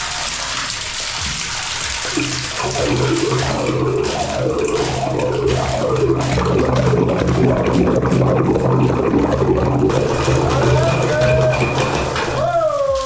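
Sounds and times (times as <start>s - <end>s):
drill bit grinding: 2.6s - 12.4s.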